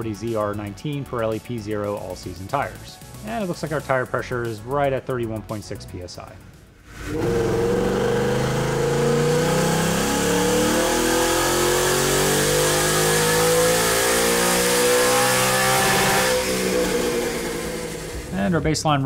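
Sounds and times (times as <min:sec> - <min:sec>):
car engine at full throttle: 0:06.9 - 0:18.6.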